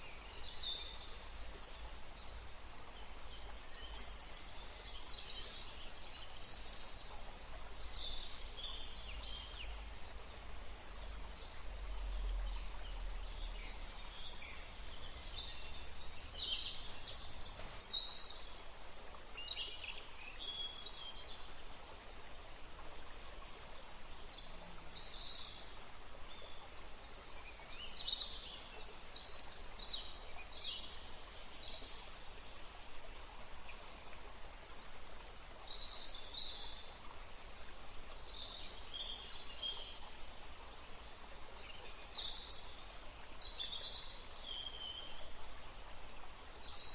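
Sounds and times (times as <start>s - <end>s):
small birds chirping: 3.3s - 21.3s
river hissing: 11.4s - 46.9s.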